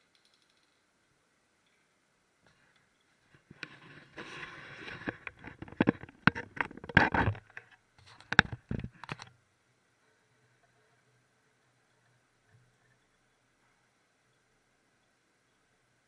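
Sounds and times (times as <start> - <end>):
clicks and knocks of parts: 0.0 - 0.9, 4.9 - 9.3
scrape at toilet tank: 3.5 - 5.6.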